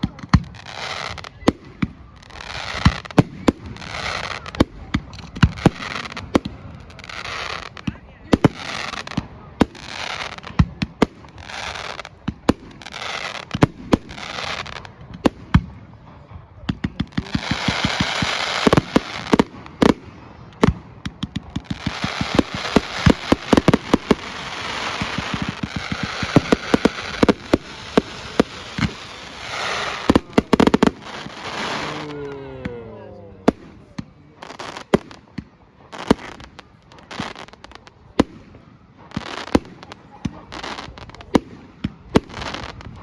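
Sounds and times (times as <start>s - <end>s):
rapid firework cracks: 0.0s - 32.1s, 33.5s - 43.0s
fireworks bangs: 0.0s - 43.0s
hissing crackle: 21.1s - 32.5s.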